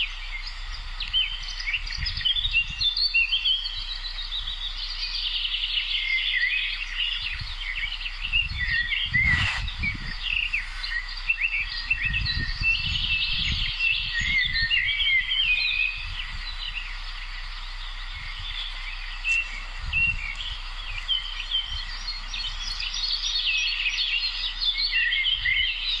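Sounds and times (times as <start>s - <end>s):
low rumbles: 0.0s - 24.6s
songbirds chirping and trilling: 0.0s - 26.0s.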